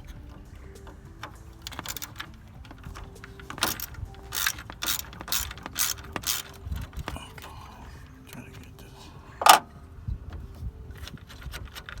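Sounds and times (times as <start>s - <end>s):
socket ratchet clicking: 0.0s - 7.2s.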